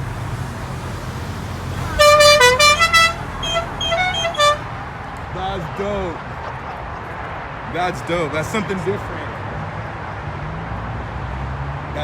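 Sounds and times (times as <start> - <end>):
car engine rumble: 0.0 - 7.6
musical car horn tune: 1.8 - 4.7.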